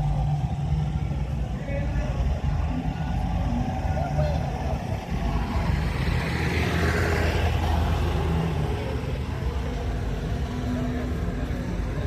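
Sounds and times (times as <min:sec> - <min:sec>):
rushing noise: 0:00.0 - 0:12.0
vehicle engine hum: 0:00.0 - 0:12.0.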